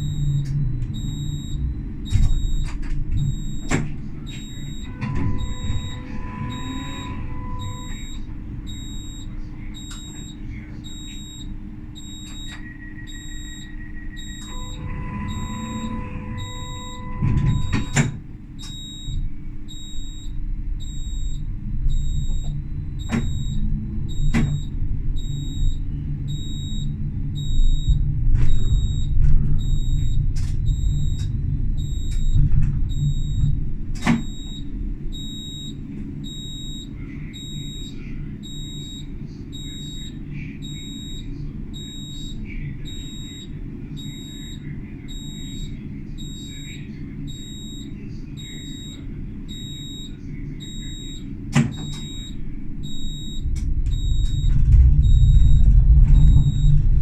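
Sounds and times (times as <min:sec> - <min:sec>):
high-pitched beep: 0:00.0 - 0:21.4, 0:34.1 - 0:56.9
tram wheels and motors rumbling: 0:00.0 - 0:36.8, 0:50.6 - 0:57.0
steady low tone: 0:00.0 - 0:57.0.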